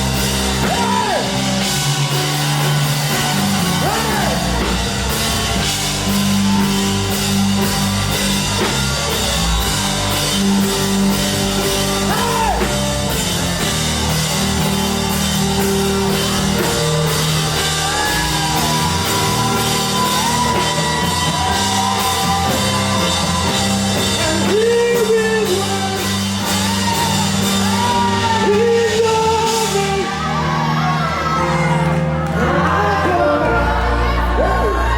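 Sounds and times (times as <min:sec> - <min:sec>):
worship band playing: 0:00.0 - 0:34.9
person singing: 0:16.9 - 0:34.9.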